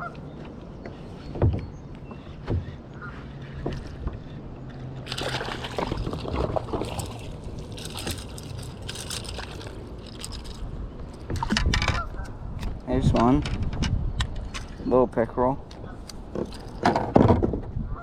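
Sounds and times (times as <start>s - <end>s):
water splashing around kayak: 1.0s - 12.3s.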